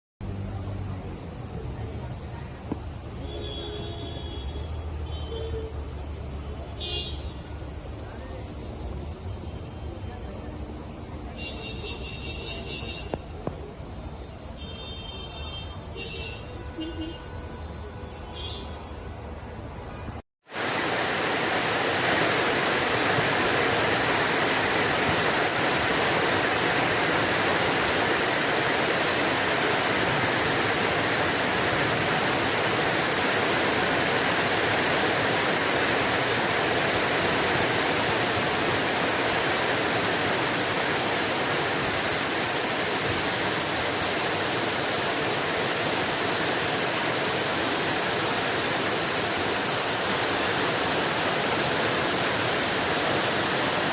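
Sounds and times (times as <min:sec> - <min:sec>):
heavy water rushing: 0:20.4 - 0:53.9.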